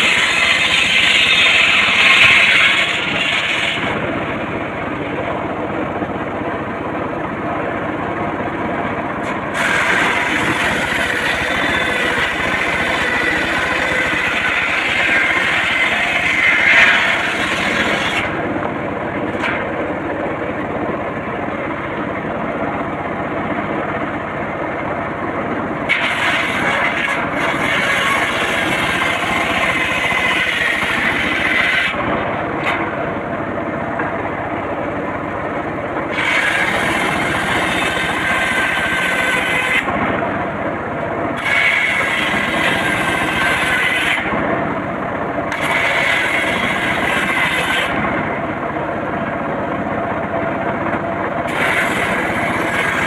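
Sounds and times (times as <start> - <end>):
circular saw cutting wood: 0.0 - 4.9, 9.2 - 19.8, 25.8 - 33.0, 36.0 - 40.3, 41.3 - 44.4, 45.5 - 48.5, 51.3 - 53.0.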